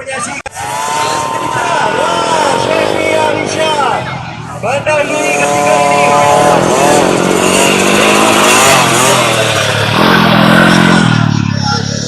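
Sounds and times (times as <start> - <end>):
lower engine note: 0.5 - 12.0
motocross engines revving: 0.5 - 12.0.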